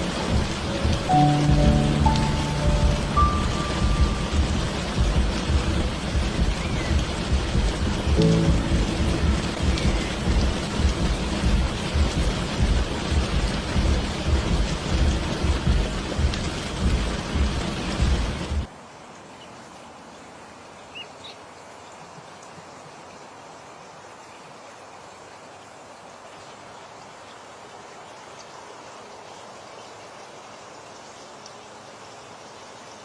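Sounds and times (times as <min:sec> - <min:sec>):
rolling thunder: 0:00.0 - 0:18.7
heavy rain: 0:00.0 - 0:20.6
outdoor background hiss: 0:00.0 - 0:33.0.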